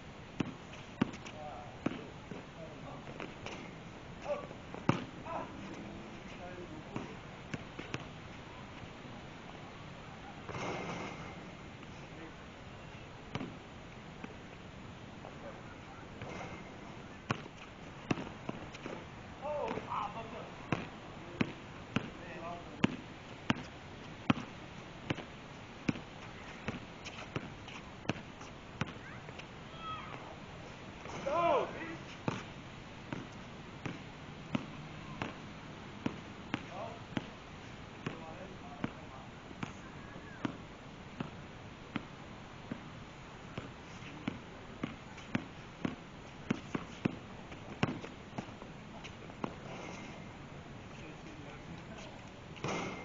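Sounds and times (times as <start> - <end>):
basketball bouncing: 4.8 - 5.1, 17.3 - 19.0, 20.7 - 22.2, 52.6 - 53.0
basketball bouncing on court: 4.8 - 5.1, 20.7 - 22.2, 22.8 - 24.5, 52.6 - 53.0.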